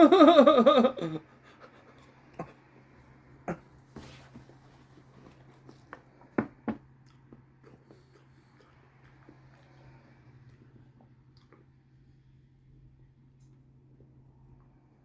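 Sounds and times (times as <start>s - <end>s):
person chewing food: 4.3s - 12.0s.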